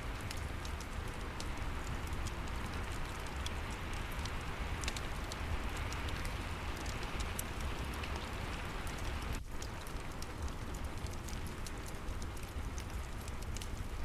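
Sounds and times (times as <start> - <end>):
fireplace crackles: 0.0 - 14.0
steady rain: 0.0 - 14.0.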